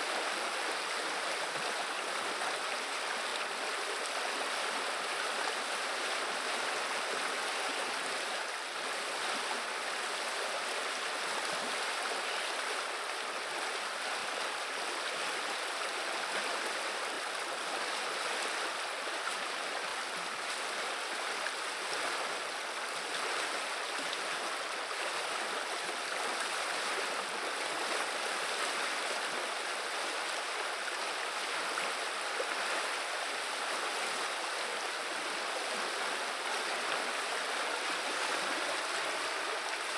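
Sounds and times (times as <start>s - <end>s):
river water babbling over stones: 0.0s - 39.9s.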